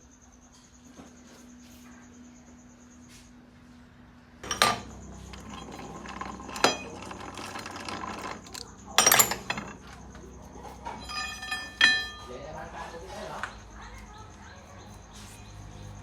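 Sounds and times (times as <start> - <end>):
steady mechanical hum: 0.0 - 16.0
metal parts clinking: 4.4 - 10.2, 11.0 - 12.3.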